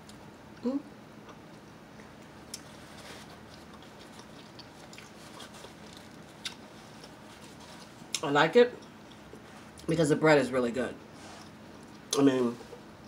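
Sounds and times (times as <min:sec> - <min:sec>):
person chewing: 0:02.1 - 0:09.9.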